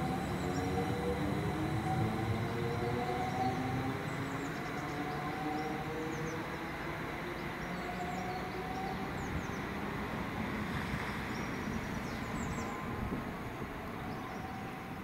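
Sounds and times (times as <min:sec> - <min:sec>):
traction motor whine: 0:00.0 - 0:05.7
train rumble pulling away: 0:00.0 - 0:15.0.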